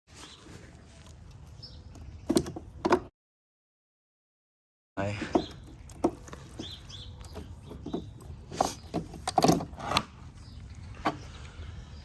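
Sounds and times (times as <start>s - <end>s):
tools and parts clicking: 5.4s - 10.1s.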